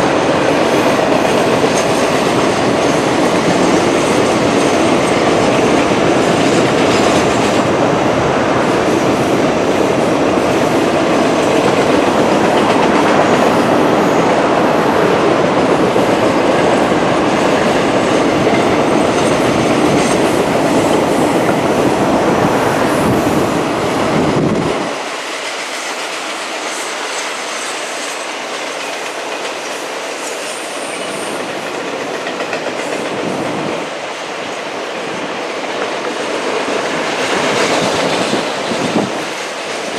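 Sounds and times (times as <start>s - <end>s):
freight train rolling past: 0.0s - 39.9s
wheels clicking over rail joints: 24.6s - 39.9s.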